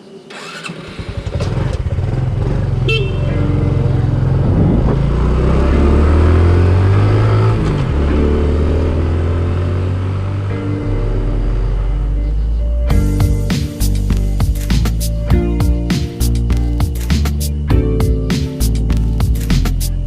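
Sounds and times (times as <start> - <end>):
motorcycle engine revving: 0.3 - 14.5.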